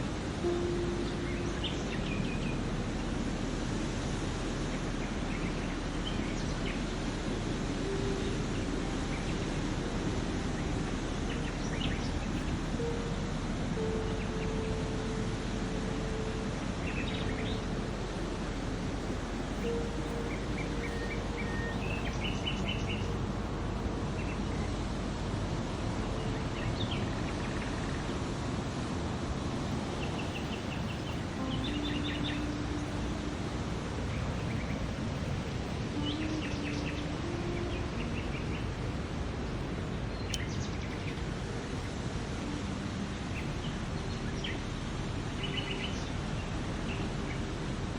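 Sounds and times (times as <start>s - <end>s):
steady rushing noise: 0.0s - 47.9s
soft held tones: 7.8s - 28.6s
small birds chirping: 16.9s - 28.7s, 29.4s - 47.4s.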